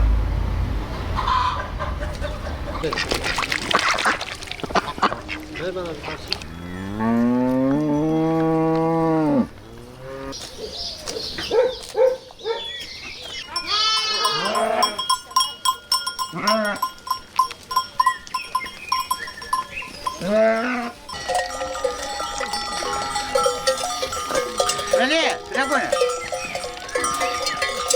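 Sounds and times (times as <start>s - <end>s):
goats bleating: 13.5s - 15.1s, 20.0s - 27.9s
steady ringing tones: 13.6s - 27.9s.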